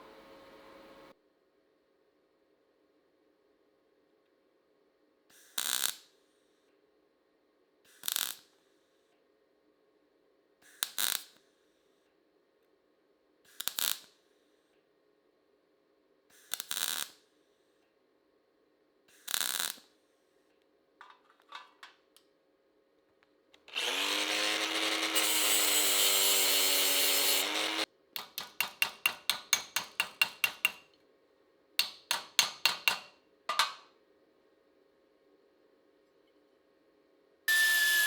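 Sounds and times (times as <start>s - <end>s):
metal scraping: 21.0s - 21.9s
power tool running: 23.6s - 27.9s.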